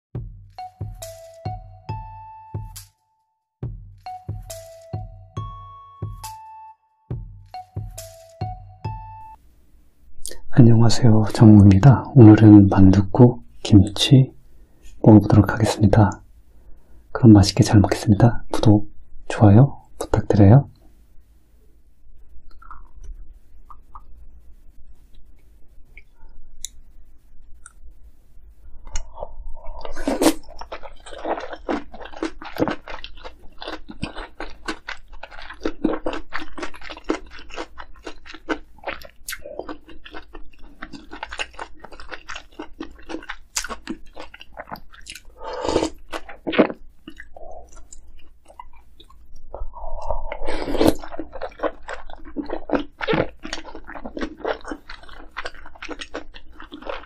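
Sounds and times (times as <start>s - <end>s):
close chewing and crunching: 28.8s - 57.0s.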